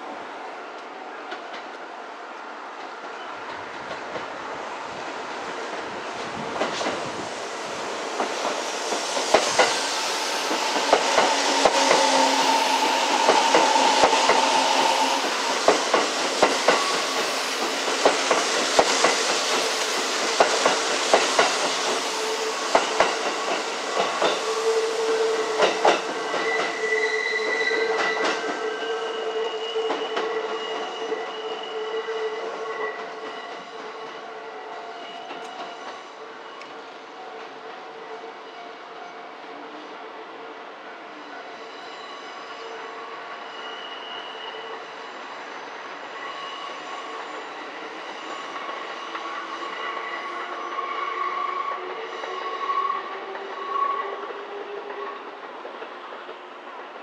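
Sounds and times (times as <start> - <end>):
electric train whining tones: 8.1 - 34.3
train wheels clacking over rail joints: 8.2 - 24.8, 25.5 - 26.9.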